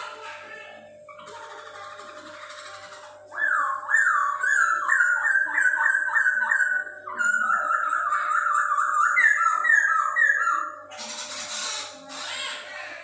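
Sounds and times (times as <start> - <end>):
bird singing whistled notes: 3.4 - 11.3.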